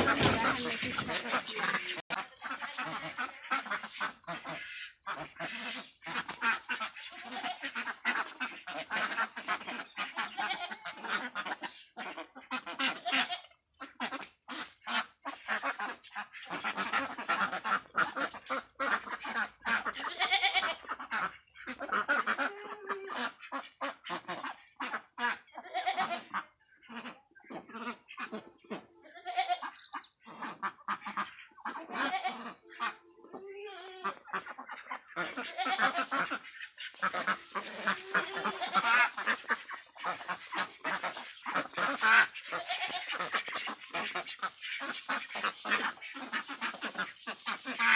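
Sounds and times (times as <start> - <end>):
ducks quacking: 0.0 - 47.9.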